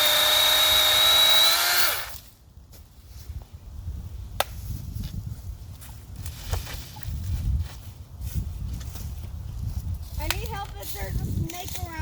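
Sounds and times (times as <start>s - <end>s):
chainsaw running: 0.0s - 2.2s.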